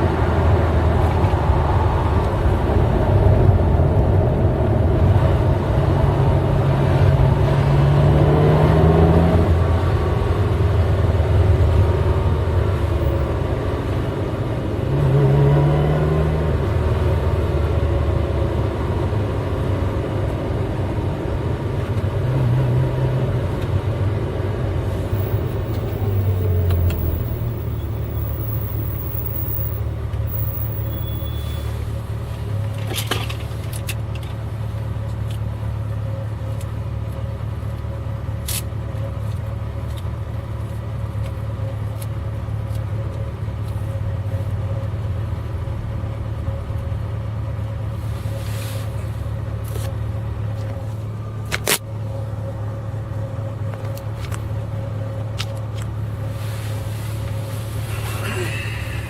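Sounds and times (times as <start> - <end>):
car engine running: 23.2 - 59.0.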